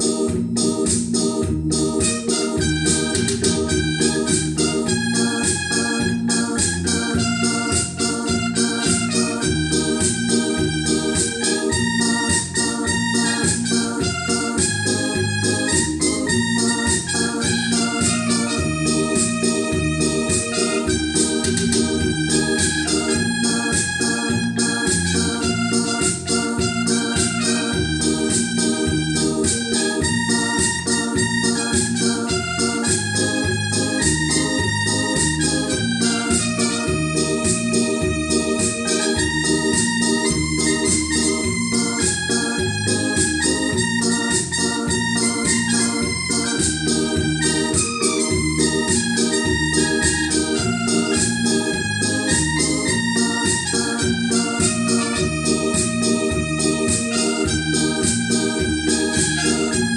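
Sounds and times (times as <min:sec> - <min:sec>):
electronic organ music: 0:00.0 - 0:59.9.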